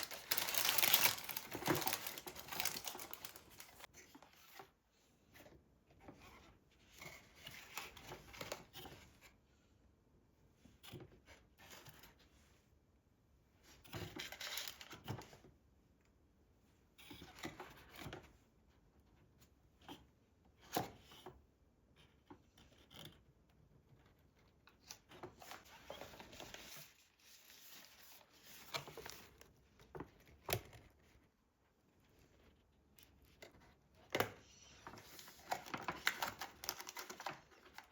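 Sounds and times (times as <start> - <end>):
rustling and scraping: 0.0 - 9.4.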